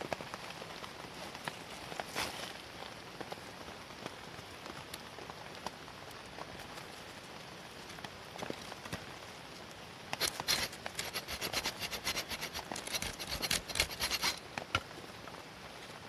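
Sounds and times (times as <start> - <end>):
rain on tent canvas: 0.0 - 16.0
close scratching clicks: 10.2 - 14.4.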